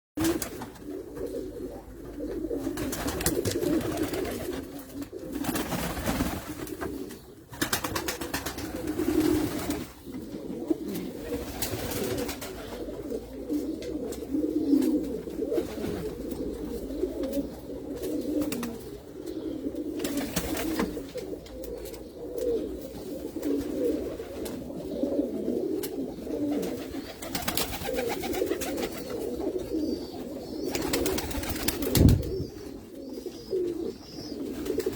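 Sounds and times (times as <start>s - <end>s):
pigeons cooing: 0.2s - 34.9s.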